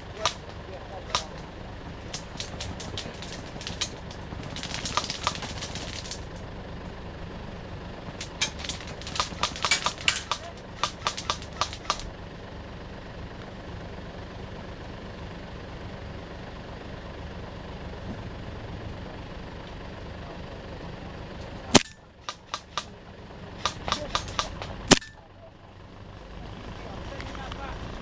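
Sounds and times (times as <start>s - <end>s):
airsoft gun shots: 0.0s - 6.4s, 8.2s - 12.1s, 21.7s - 23.0s, 23.6s - 25.2s
loud crack: 0.0s - 6.5s, 8.2s - 12.2s, 21.7s - 23.0s, 23.6s - 25.2s
vehicle engine rumble: 0.0s - 28.0s.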